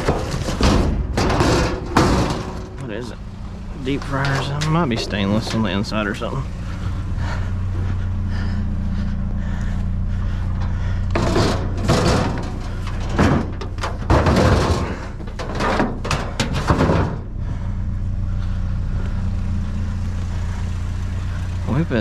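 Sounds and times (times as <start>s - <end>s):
junk clattering in metal dumpster: 0.0s - 6.4s, 10.5s - 17.7s
steady low hum: 0.0s - 22.0s.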